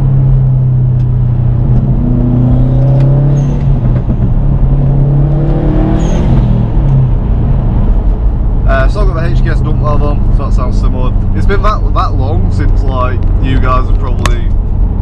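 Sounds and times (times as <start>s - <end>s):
high turbo whistles: 5.8s - 6.6s.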